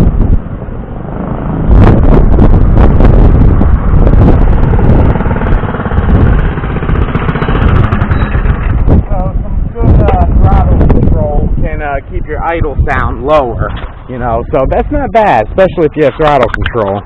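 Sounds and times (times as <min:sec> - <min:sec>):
small engine running: 0:04.2 - 0:09.1.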